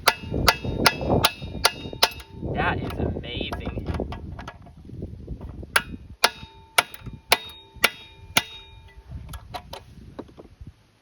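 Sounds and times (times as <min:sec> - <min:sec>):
hammer striking metal wrench: 0:00.0 - 0:03.0, 0:05.8 - 0:09.0.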